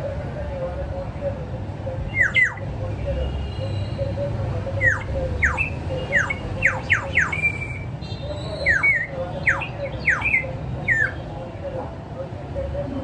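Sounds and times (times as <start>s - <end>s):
high whistled calls: 2.1s - 2.7s, 3.3s - 11.2s.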